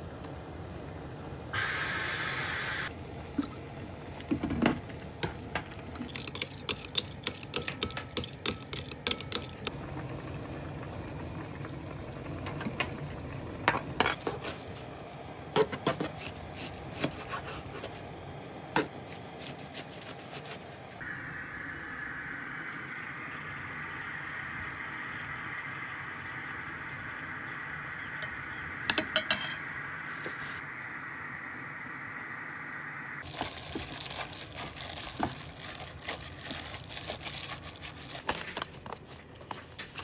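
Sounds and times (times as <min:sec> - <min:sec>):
dishes and utensils clinking: 0:06.0 - 0:09.7, 0:28.9 - 0:29.7.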